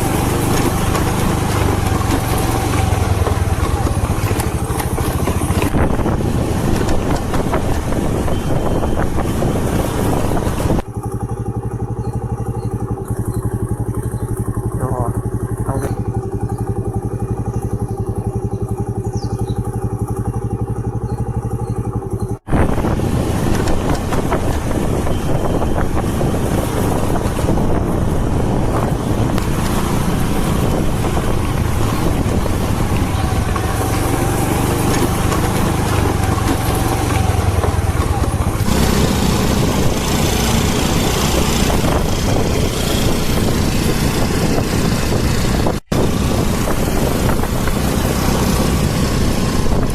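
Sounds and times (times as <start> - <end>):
wind noise: 0.0 - 10.9, 22.4 - 49.9
vehicle engine running: 0.0 - 49.9.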